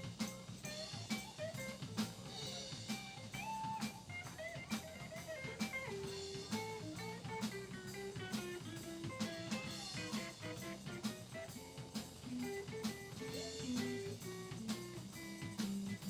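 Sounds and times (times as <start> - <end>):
drum kit beat: 0.0 - 16.0
electric guitar lead with bent notes: 3.1 - 15.4.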